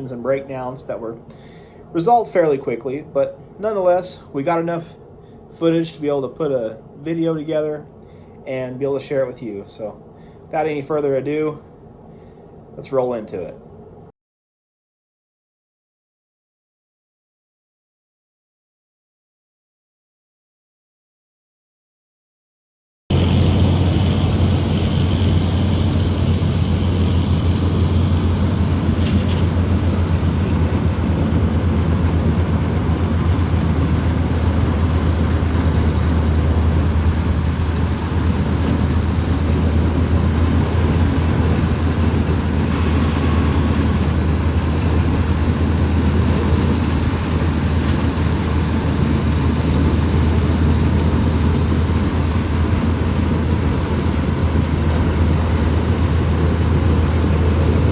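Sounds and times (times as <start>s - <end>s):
combine harvester drone: 23.1s - 57.9s.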